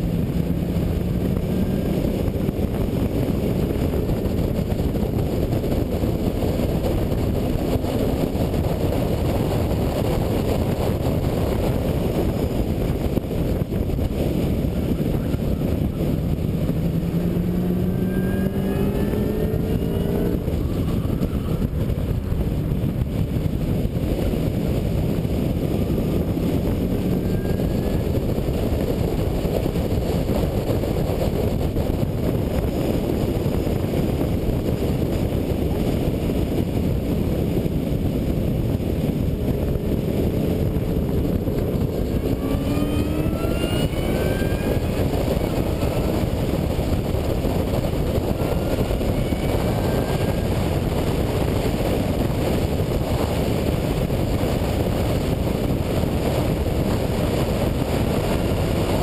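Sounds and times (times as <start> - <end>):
car engine revving: 0.0 - 30.9, 38.0 - 52.2
wind and road noise: 0.0 - 59.0.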